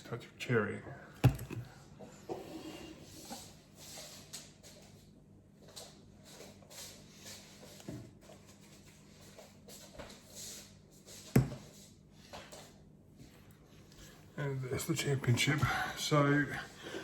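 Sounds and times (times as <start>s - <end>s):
items rustling and knocking: 1.2s - 1.8s, 11.2s - 13.4s.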